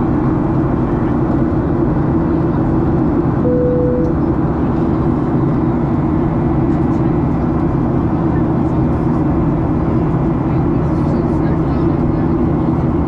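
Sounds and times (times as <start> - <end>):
airliner cabin engine drone: 0.0 - 13.0
short steady tone: 3.4 - 4.3.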